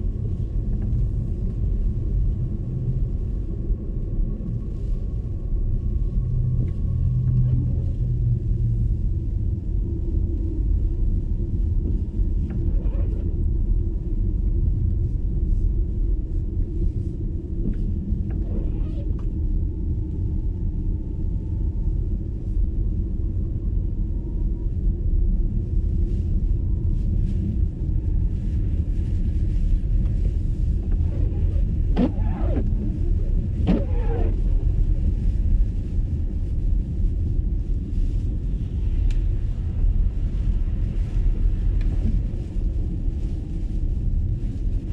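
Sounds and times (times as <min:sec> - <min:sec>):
car tyre road rumble: 0:00.0 - 0:44.9.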